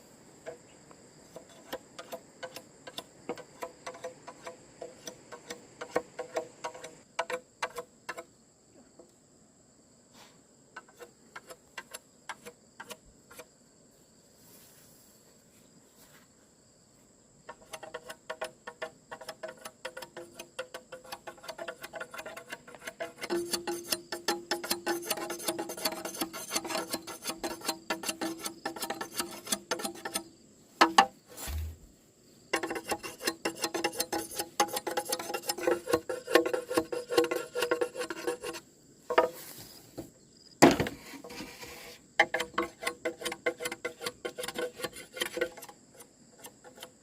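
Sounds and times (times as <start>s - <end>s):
sharp taps and knocks: 1.3s - 8.3s, 17.5s - 30.2s, 30.8s - 31.8s.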